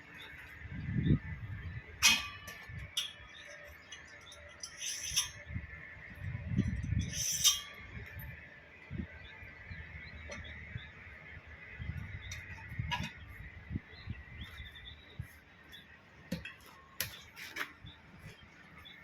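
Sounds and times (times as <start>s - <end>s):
metal scrapes and clinks: 2.0s - 5.4s, 6.7s - 7.9s.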